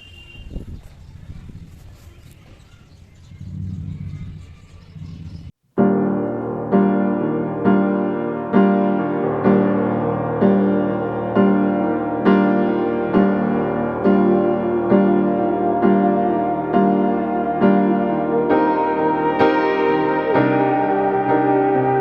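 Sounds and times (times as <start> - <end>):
slow piano chords: 5.8 - 22.0.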